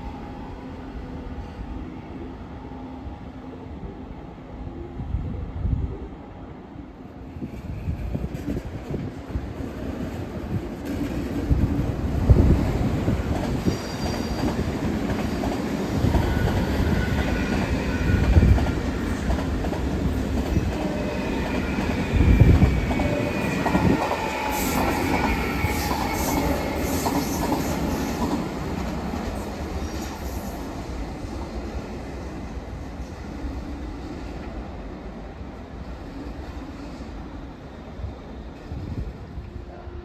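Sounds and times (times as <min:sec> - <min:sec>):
train wheels rumbling: 0:07.4 - 0:31.7.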